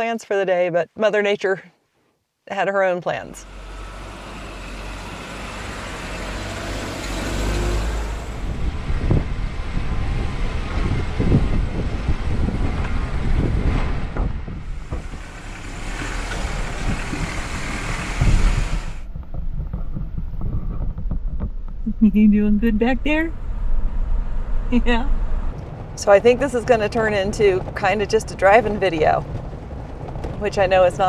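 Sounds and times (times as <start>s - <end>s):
engine and road noise rumble: 3.1s - 31.0s
knocks and bumps: 14.2s - 21.8s, 25.5s - 31.0s.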